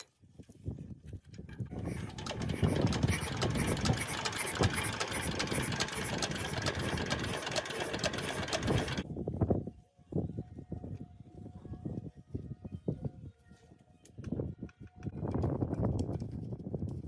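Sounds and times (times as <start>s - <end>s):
diesel engine running: 1.7s - 9.0s.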